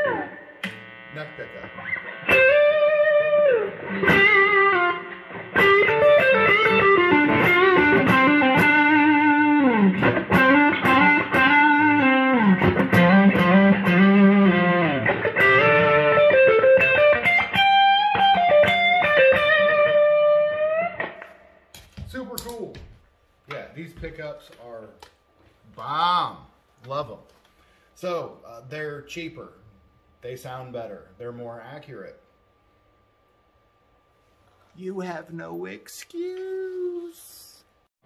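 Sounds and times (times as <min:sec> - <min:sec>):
electric guitar lead line: 0:00.0 - 0:21.6.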